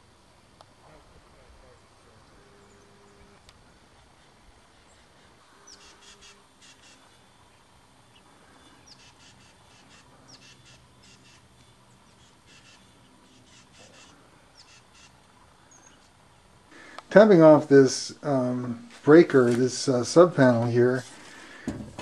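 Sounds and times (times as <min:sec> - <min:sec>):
faint low steady hum: 0:00.0 - 0:22.0
faint bird calls: 0:00.8 - 0:17.0.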